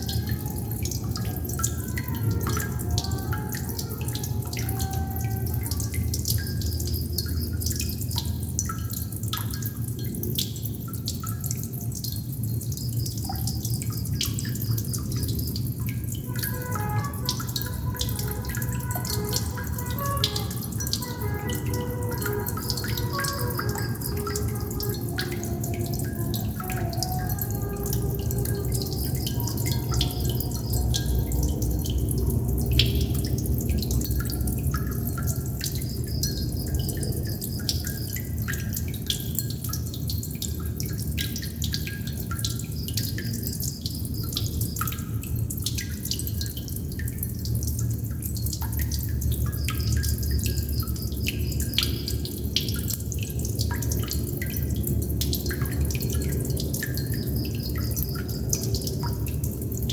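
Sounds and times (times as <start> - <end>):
water droplets dripping: 0.0 - 59.9
steady low rumble: 17.1 - 37.4.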